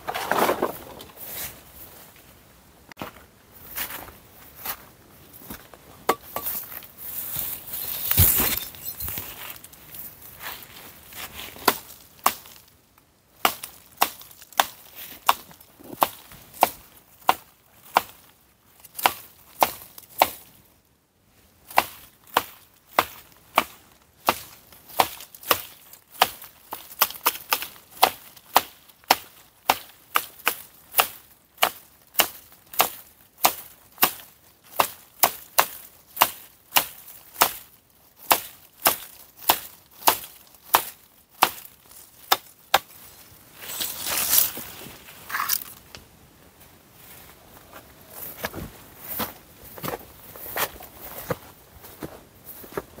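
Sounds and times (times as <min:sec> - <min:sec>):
rustling: 0:00.0 - 0:02.4, 0:03.0 - 0:12.7, 0:39.0 - 0:52.8
axe chopping dry wood: 0:21.7 - 0:37.6, 0:38.2 - 0:42.9.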